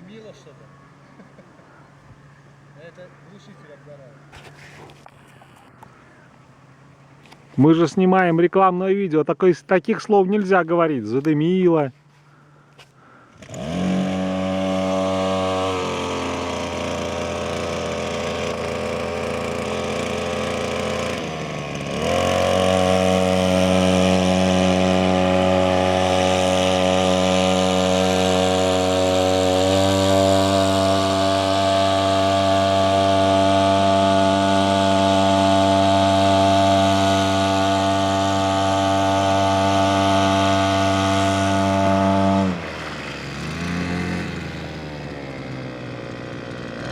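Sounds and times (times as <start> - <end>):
small two-stroke engine running: 12.3 - 46.9.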